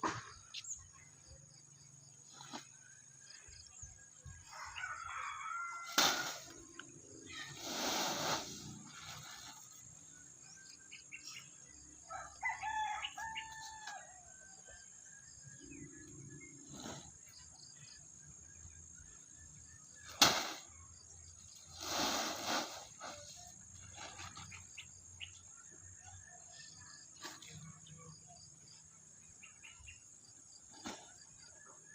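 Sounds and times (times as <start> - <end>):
rooster crowing: 4.5 - 6.5.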